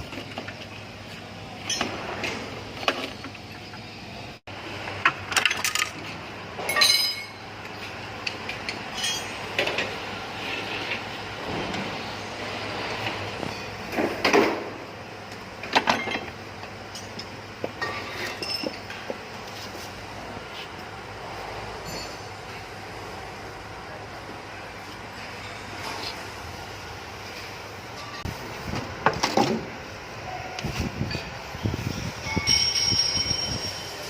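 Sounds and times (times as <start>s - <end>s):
metal tools and parts clanking: 1.6s - 3.7s, 5.0s - 10.0s, 13.0s - 14.8s, 15.6s - 19.2s, 21.6s - 22.8s, 27.3s - 28.3s, 31.0s - 34.0s.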